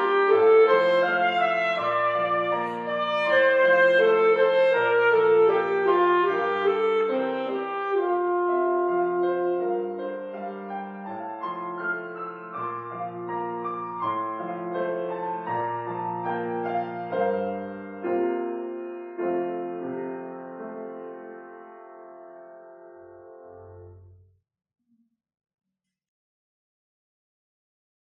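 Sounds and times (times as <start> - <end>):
gentle piano chords: 0.0 - 24.0.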